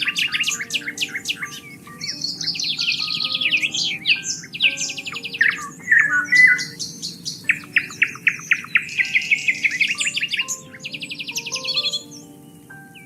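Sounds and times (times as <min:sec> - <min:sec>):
birds singing: 0:00.0 - 0:13.0
fast buzzy bird trill: 0:00.0 - 0:13.0.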